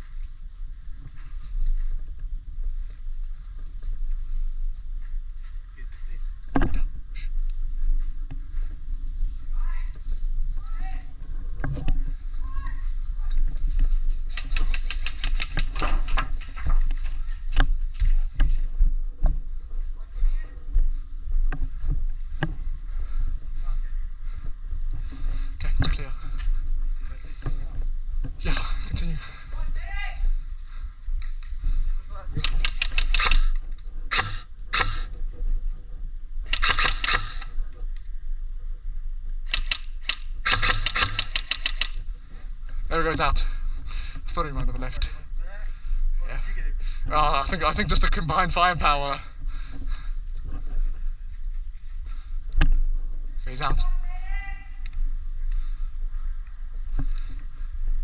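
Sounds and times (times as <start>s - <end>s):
low rumble: 0.0s - 36.6s, 41.8s - 58.0s
airsoft gun shots: 32.4s - 35.1s, 36.5s - 37.5s, 39.5s - 42.0s.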